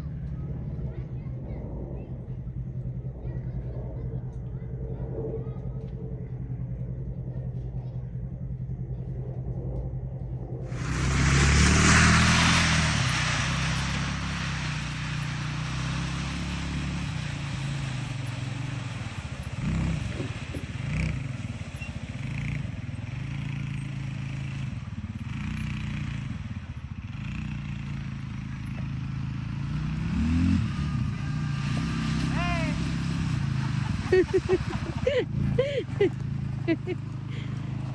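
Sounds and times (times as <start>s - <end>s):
vehicle engine running: 0.0s - 37.9s
loud rushing noise: 10.6s - 18.2s.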